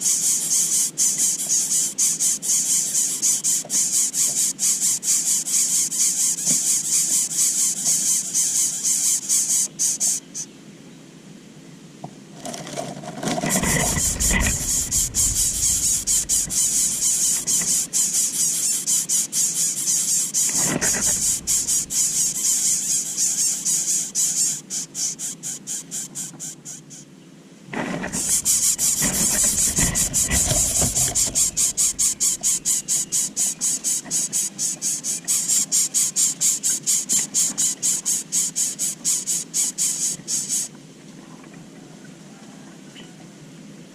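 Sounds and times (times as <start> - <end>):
low rustle: 12.6 - 17.8, 20.5 - 22.3, 27.8 - 32.8
nestlings squealing: 13.4 - 27.0, 28.0 - 35.7.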